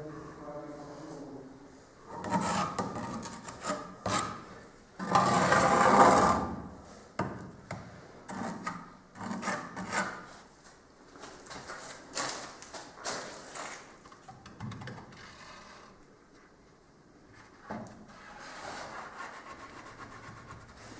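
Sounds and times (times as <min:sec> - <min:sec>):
rasping scraping strokes: 0:02.2 - 0:04.5.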